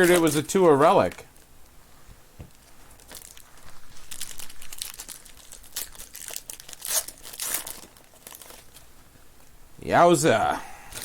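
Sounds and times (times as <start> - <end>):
packaging crinkling and ripping: 0.0 - 1.2, 2.9 - 8.9.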